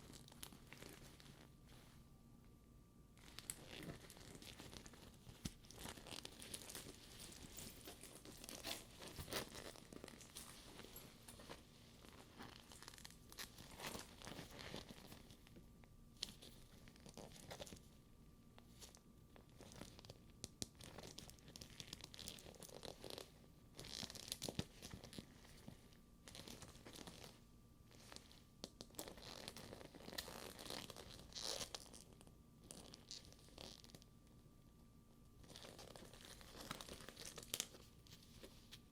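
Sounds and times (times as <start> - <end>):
leather bag crackling: 0.0 - 1.4, 3.2 - 15.4
soft rustling: 0.0 - 34.1, 34.8 - 38.9.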